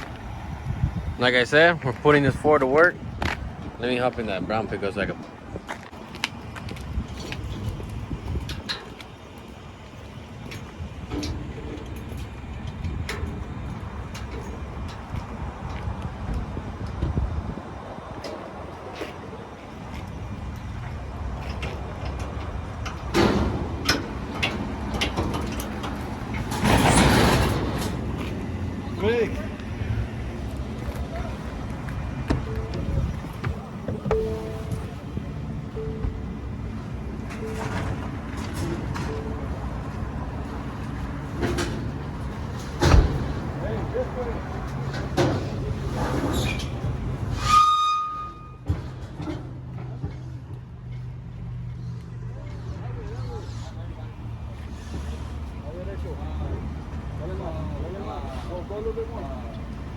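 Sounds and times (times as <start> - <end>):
truck engine running: 0.0 - 47.3.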